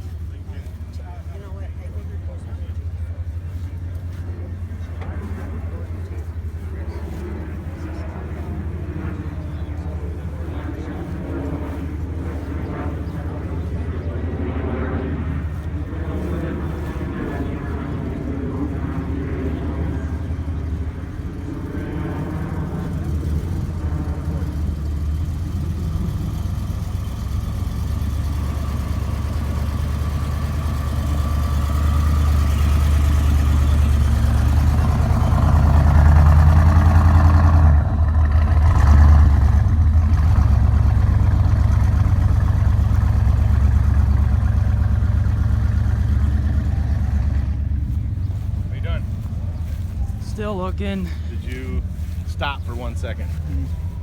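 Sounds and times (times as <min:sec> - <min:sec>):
car engine rumbling: 0:15.0 - 0:54.0.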